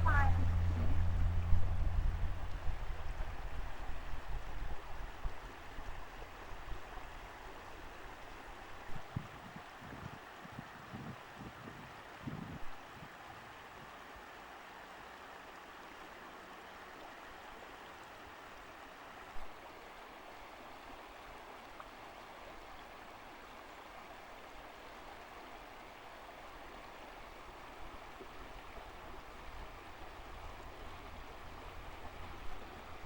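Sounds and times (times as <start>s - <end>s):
low rumble: 0.0s - 4.3s, 28.6s - 33.0s
rushing water: 0.0s - 33.0s.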